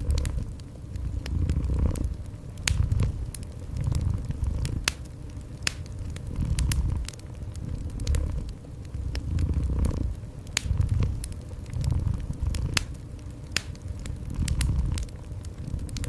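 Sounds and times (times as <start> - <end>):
cat purring: 0.0 - 5.0, 6.1 - 13.0, 14.1 - 16.0
wood fire crackling and popping: 0.0 - 16.0.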